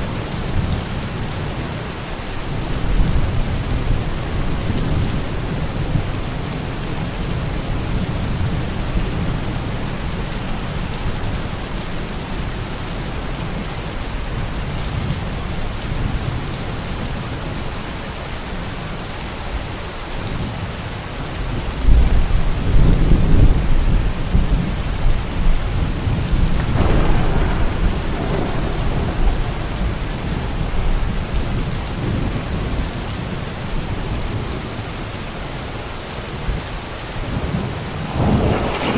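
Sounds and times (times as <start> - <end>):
steady rain: 0.0 - 38.9
rolling thunder: 21.6 - 35.2, 36.4 - 38.9.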